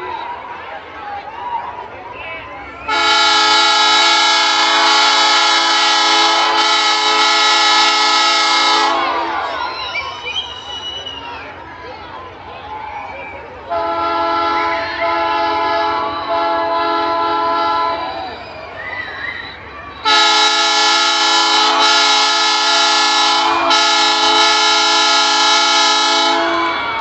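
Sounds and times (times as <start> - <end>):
train air horn blasts: 2.9 - 9.5, 13.7 - 18.1, 20.0 - 27.0.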